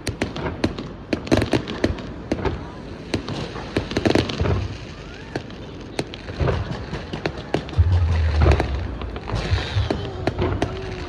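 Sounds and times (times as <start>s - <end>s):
fireworks cracks and pops: 0.0s - 11.0s
deep firework boom: 7.8s - 11.0s.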